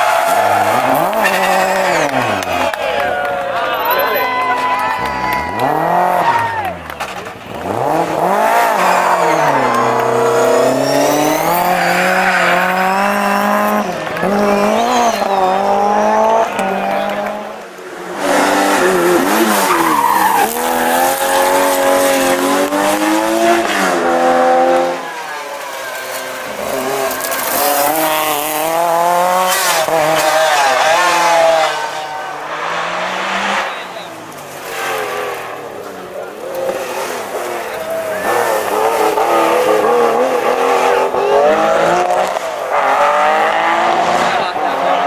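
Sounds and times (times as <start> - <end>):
rally car engines revving: 0.0 - 45.0
tyre squeal: 8.7 - 13.3, 14.4 - 15.8, 19.1 - 22.2.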